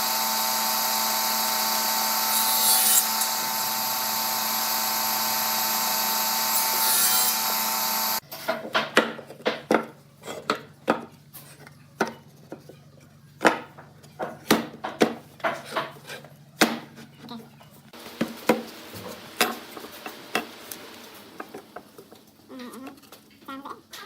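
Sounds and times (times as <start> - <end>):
power tool motor: 0.0 - 8.2
hand tool scraping wood: 14.3 - 17.4.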